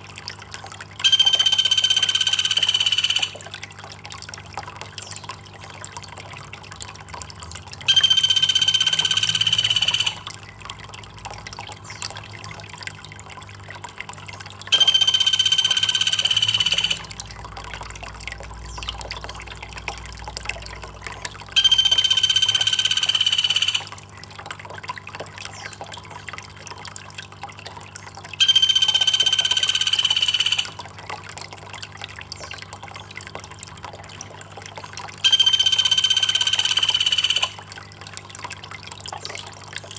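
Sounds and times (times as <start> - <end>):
trickling water: 0.0 - 39.9
high-pitched buzzing animal call: 1.0 - 3.5, 7.9 - 10.3, 14.7 - 17.2, 21.6 - 23.9, 28.4 - 30.8, 35.2 - 37.6.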